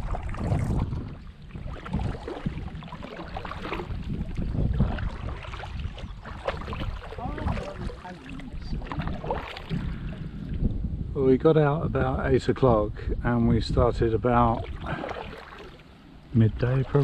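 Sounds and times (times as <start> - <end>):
paddles splashing in water: 0.0 - 10.8, 14.3 - 17.0
wind rumble on microphone: 0.0 - 17.0.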